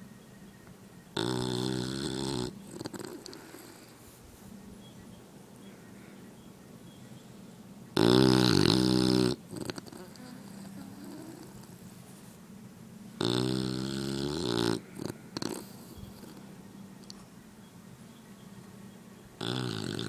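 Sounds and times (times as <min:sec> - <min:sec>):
dog snoring: 0:01.1 - 0:04.2, 0:08.0 - 0:12.1, 0:13.2 - 0:17.2, 0:19.4 - 0:20.0.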